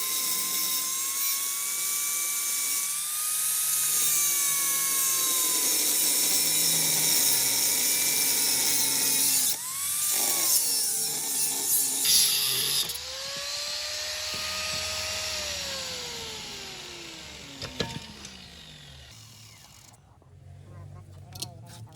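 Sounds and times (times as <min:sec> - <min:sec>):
abrasive disc grinding steel: 0:00.0 - 0:20.0
motor whine: 0:12.0 - 0:20.0.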